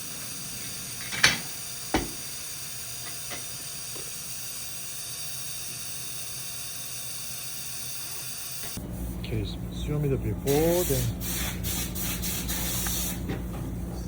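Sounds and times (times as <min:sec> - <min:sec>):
steady hiss: 0:00.0 - 0:04.0.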